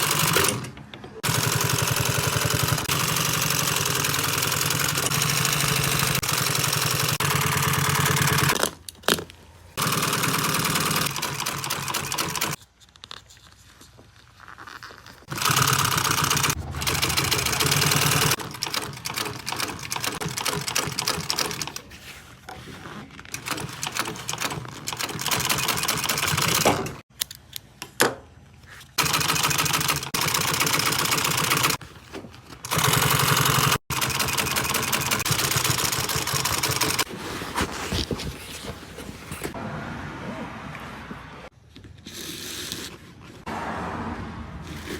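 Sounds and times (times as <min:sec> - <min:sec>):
sewing machine stitching: 0:00.0 - 0:08.6, 0:09.8 - 0:12.6, 0:15.2 - 0:21.9, 0:23.3 - 0:27.0, 0:29.0 - 0:31.8, 0:32.6 - 0:37.1.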